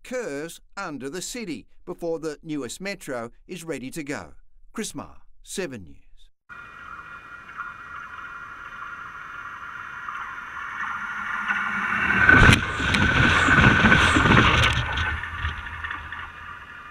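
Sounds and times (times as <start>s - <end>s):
high ringing hum of rails: 6.5s - 16.9s
wheels clicking over camera: 11.5s - 16.9s.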